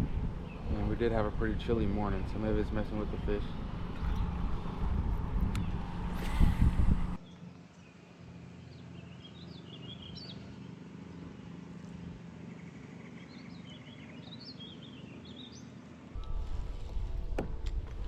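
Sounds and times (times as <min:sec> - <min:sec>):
songbirds twittering: 0:00.0 - 0:04.8, 0:07.2 - 0:16.4
wind buffeting microphone: 0:00.0 - 0:07.2.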